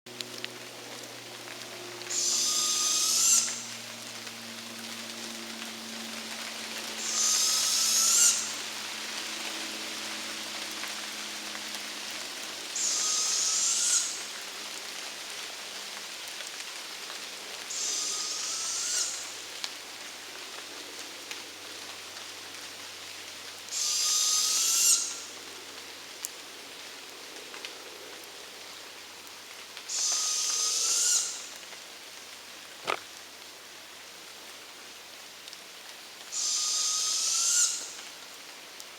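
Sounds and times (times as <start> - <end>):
steady rain: 0.1 - 38.9.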